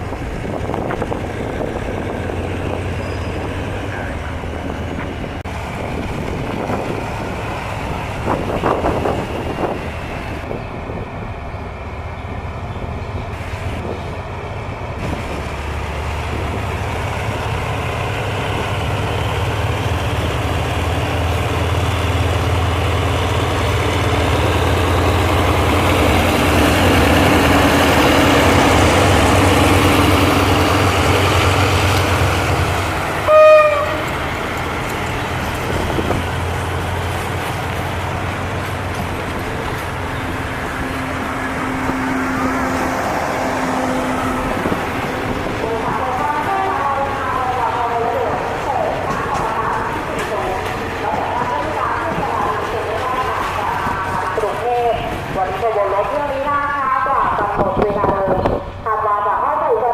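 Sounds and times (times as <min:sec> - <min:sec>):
diesel locomotive engine drone: 0:00.0 - 0:59.9
train horn toot: 0:33.2 - 0:34.1.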